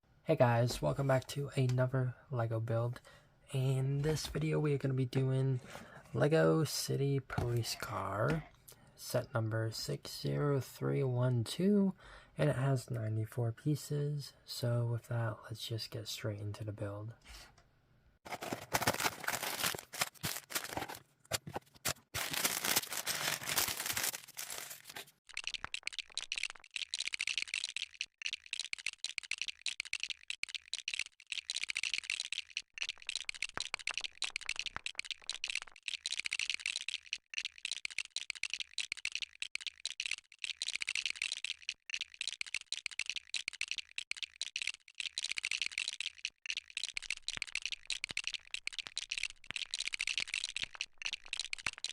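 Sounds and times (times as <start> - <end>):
plastic bricks rattling: 18.3 - 21.6, 22.2 - 25.1.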